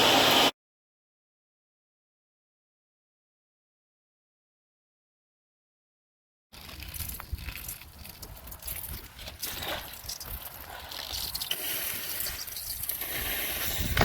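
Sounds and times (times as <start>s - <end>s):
hot metal hissing in water: 10.6s - 14.0s.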